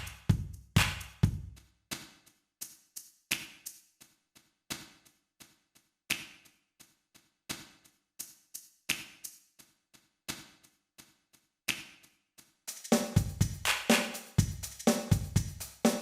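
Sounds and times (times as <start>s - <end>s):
drum machine percussion hits: 0.0s - 3.8s, 12.7s - 16.0s.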